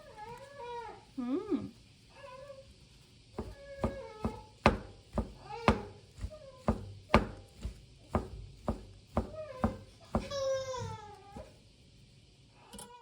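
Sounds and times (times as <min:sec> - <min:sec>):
sharp knocks: 0:03.4 - 0:11.6.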